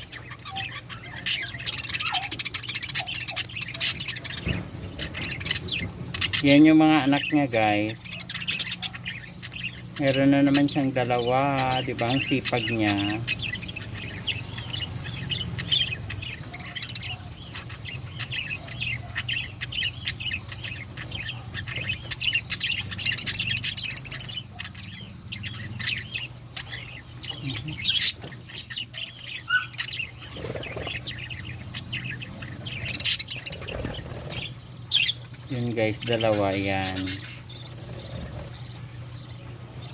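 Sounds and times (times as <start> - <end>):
budgerigar squawks: 0.0 - 6.5, 8.0 - 9.4, 28.8 - 31.4
budgerigars chirping: 0.0 - 39.9.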